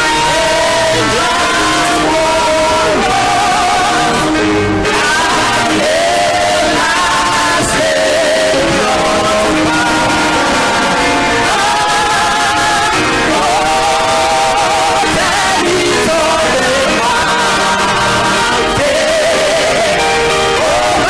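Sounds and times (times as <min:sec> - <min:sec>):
gospel choir singing: 0:00.0 - 0:21.0
instrumental accompaniment: 0:00.0 - 0:21.0.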